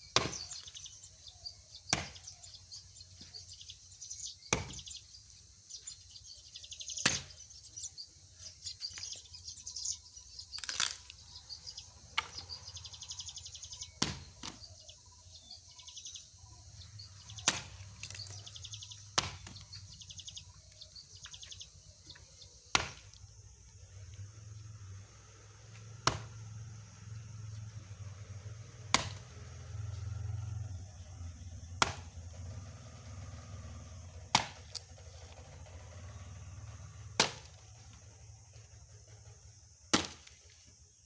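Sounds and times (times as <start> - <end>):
axe chopping wood: 0.0 - 0.8, 1.8 - 2.4, 4.4 - 5.0, 7.0 - 7.5, 12.2 - 12.5, 13.9 - 14.7, 17.4 - 18.3, 19.1 - 19.8, 22.7 - 23.2, 25.9 - 26.5, 28.9 - 29.4, 31.8 - 32.2, 34.3 - 34.9, 37.2 - 37.6, 39.9 - 40.5
birds chirping and trilling: 0.0 - 41.0.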